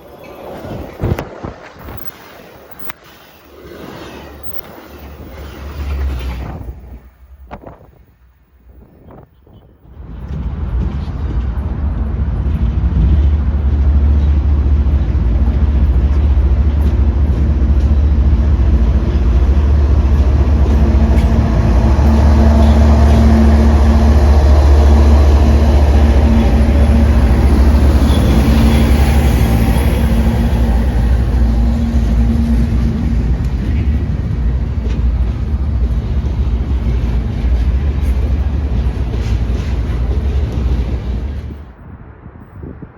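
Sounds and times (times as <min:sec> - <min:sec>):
train passing: 0:00.0 - 0:42.9.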